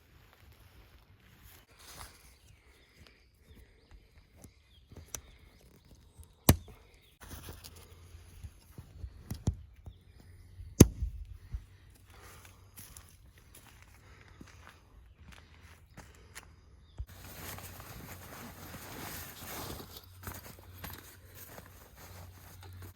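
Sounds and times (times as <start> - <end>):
rustling: 17.1 - 22.9.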